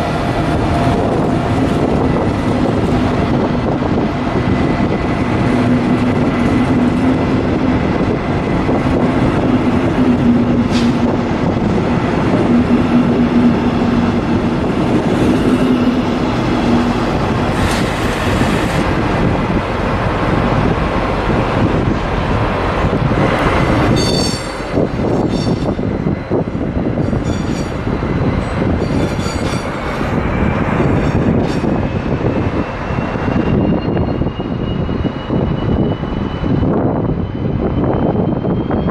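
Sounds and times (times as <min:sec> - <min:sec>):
train rumbling on rails: 0:00.0 - 0:38.9
high-pitched wheel squeals: 0:23.9 - 0:24.6, 0:25.2 - 0:25.8, 0:27.0 - 0:27.8, 0:28.8 - 0:29.8, 0:32.8 - 0:38.9.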